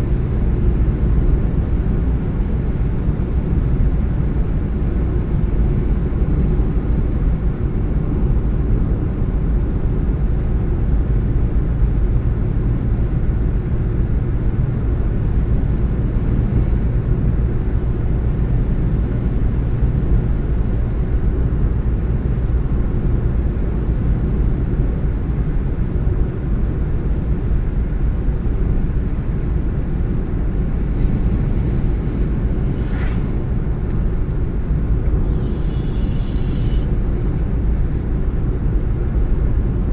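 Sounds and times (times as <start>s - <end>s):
car driving: 28.7s - 39.2s.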